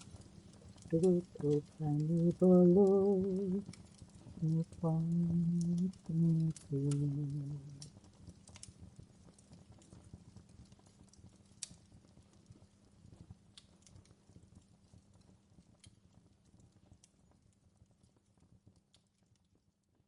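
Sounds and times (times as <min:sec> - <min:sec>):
low steady hum: 0:00.0 - 0:11.6
faint clicks and taps: 0:00.0 - 0:20.0.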